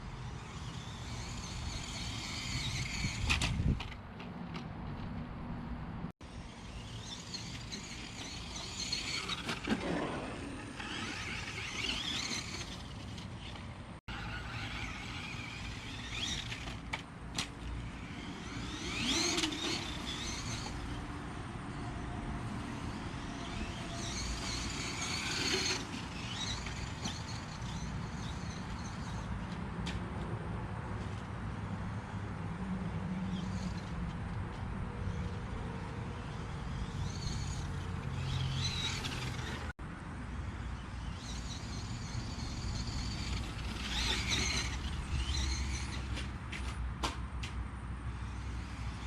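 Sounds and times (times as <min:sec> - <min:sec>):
truck rumbling across ground: 0:00.0 - 0:29.3, 0:40.5 - 0:46.8
electric motor whining: 0:17.7 - 0:21.3, 0:22.5 - 0:28.6.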